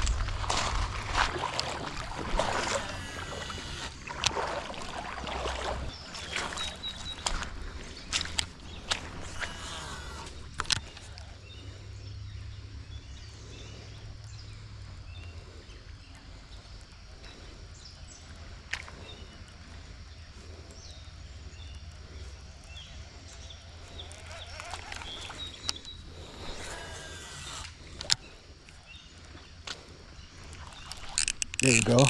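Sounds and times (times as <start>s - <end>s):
low creek rumble: 0.0s - 32.0s
sharp clicks: 30.5s - 32.0s.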